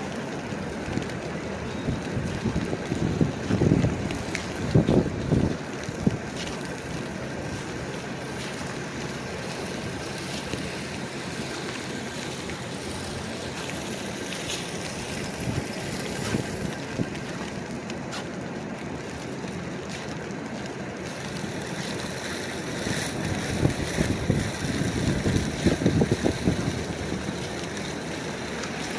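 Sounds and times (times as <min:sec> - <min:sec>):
traffic: 0:00.0 - 0:28.9
wind on microphone: 0:01.7 - 0:06.6, 0:15.1 - 0:17.3, 0:22.9 - 0:27.6.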